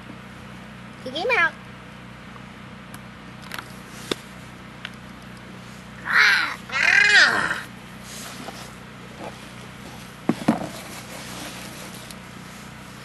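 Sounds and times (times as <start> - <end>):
young child squealing: 6.0 - 7.7.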